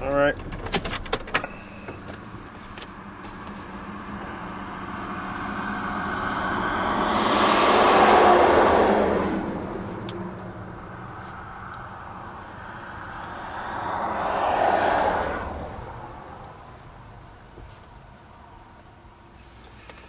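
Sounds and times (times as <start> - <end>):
steady low hum: 1.4 - 20.0
vehicle passing by: 3.0 - 16.8.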